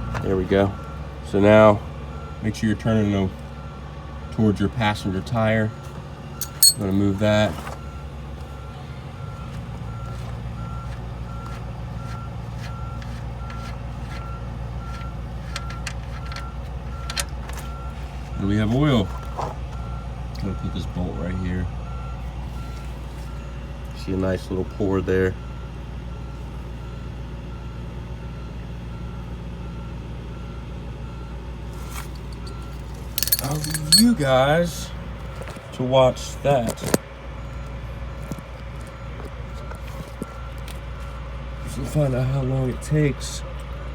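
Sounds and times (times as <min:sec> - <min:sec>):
low engine-like hum: 0:00.0 - 0:43.9
faint tool clinks: 0:06.4 - 0:06.9, 0:32.2 - 0:34.2.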